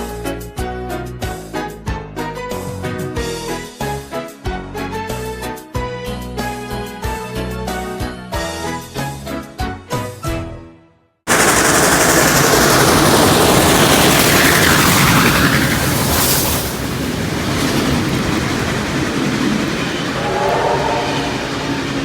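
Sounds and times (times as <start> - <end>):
train wheels rumbling on rail: 11.3 - 22.0
chord horn tone: 20.1 - 22.0.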